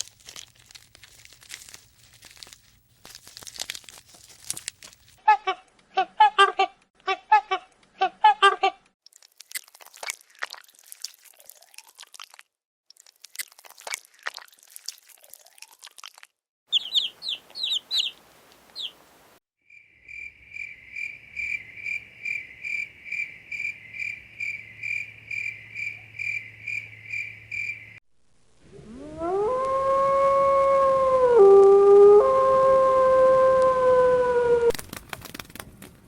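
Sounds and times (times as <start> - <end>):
high animal chirps: 16.7 - 19.0
dog howling: 28.7 - 34.7.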